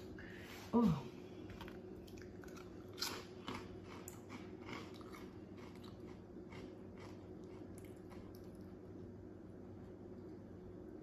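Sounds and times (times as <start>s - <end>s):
low steady hum: 0.0s - 11.0s
chewing with crunches: 1.5s - 9.0s.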